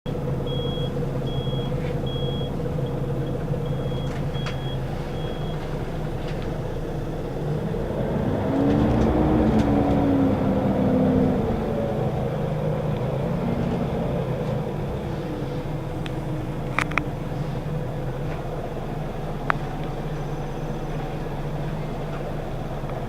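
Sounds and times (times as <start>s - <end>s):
bus diesel engine idling: 0.1s - 23.0s
high electronic warning beep: 0.5s - 5.7s.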